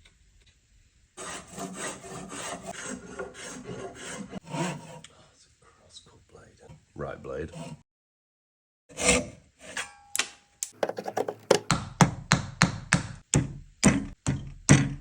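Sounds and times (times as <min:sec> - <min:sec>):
hand saw cutting wood: 0:01.2 - 0:05.2, 0:07.3 - 0:07.8, 0:08.9 - 0:09.9.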